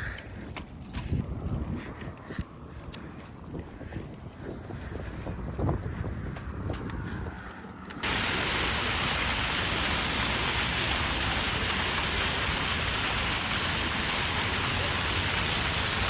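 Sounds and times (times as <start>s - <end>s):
falling water rushing: 8.0s - 16.0s.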